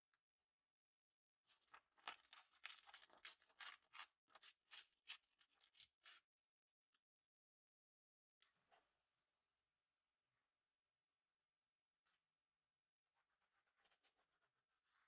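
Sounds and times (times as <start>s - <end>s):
paper rustling: 1.5s - 6.2s.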